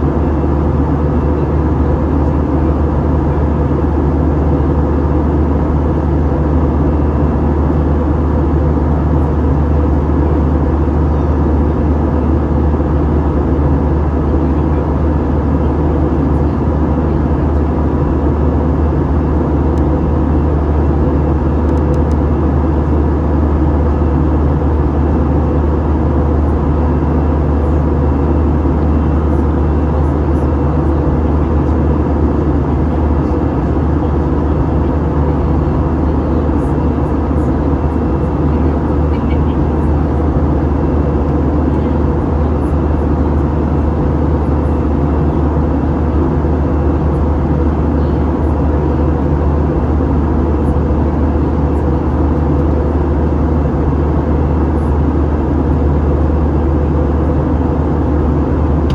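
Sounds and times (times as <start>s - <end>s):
airplane cabin engine roar: 0.0s - 58.9s
steady hums: 0.0s - 58.9s.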